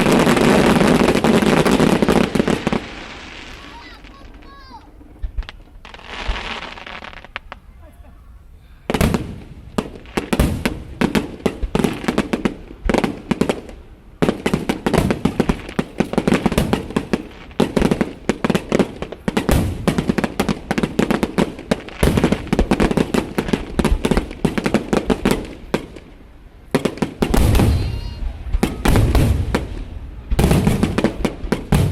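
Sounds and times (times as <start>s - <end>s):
fireworks bursting and crackling: 0.0s - 8.0s, 8.9s - 31.9s.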